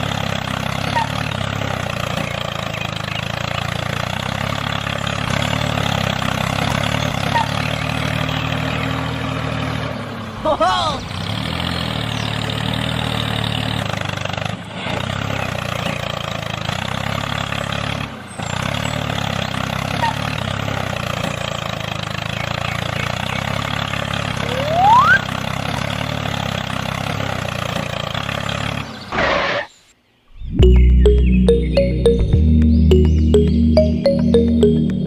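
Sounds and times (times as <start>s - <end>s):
short rising whistle: 24.4s - 25.3s.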